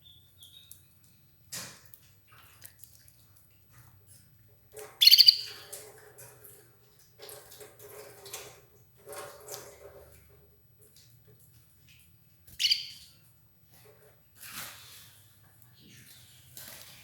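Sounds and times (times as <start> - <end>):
canary chirping: 0.0 - 0.8, 4.8 - 5.8, 12.5 - 13.1.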